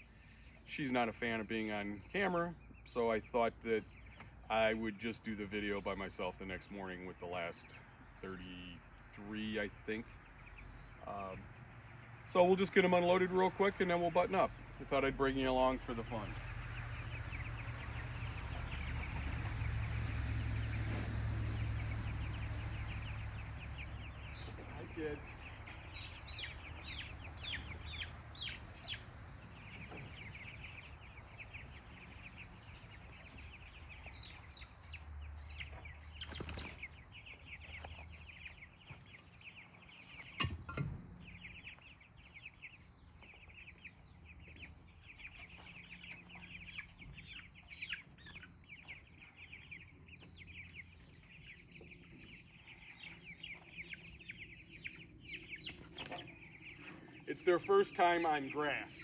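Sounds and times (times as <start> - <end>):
chicks peeping: 0.3 - 59.0.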